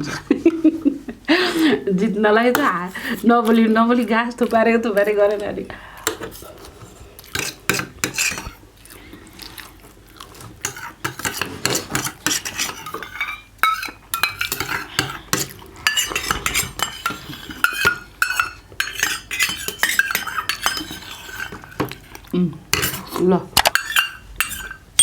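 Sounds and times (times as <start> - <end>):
cutlery clinking on plates: 7.3 - 8.6, 10.6 - 22.0, 22.8 - 25.0.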